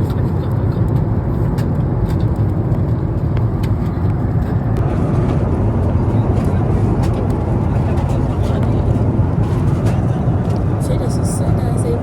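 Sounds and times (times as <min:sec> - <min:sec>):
vehicle cabin rumble: 0:00.0 - 0:12.0.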